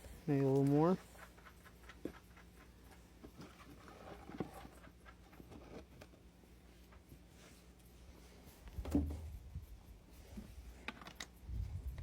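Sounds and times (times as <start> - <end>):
faint handling clicks and knocks: 10.3 - 11.4.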